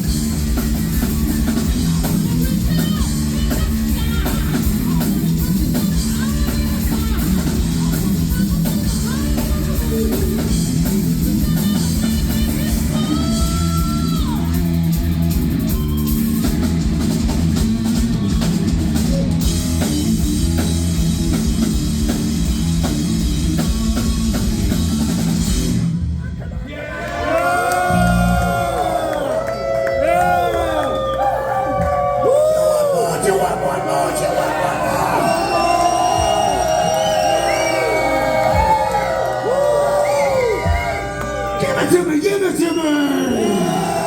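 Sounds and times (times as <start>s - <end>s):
heavy metal band playing live: 0.0s - 26.1s.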